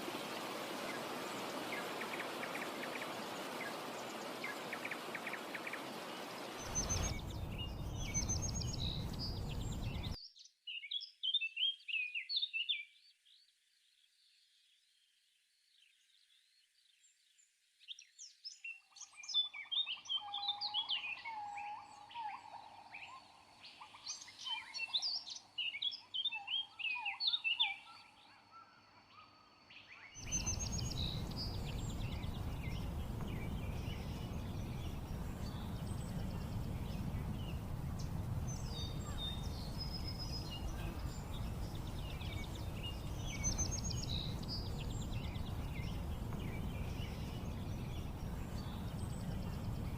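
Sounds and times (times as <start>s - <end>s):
birds singing and chirping: 0.2s - 12.8s, 30.2s - 49.9s
steady low rushing noise: 6.6s - 10.2s, 30.2s - 49.9s.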